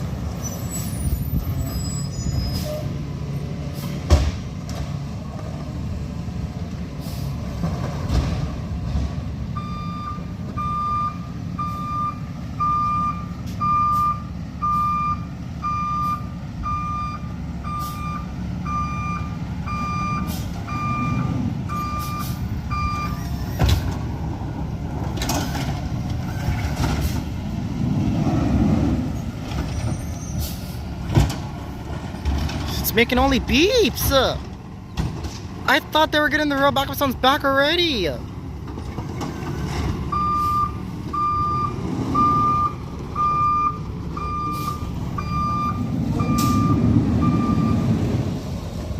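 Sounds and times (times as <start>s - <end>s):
truck engine running: 2.9s - 48.9s
truck backup alarm beeps: 9.5s - 23.8s, 40.1s - 48.1s.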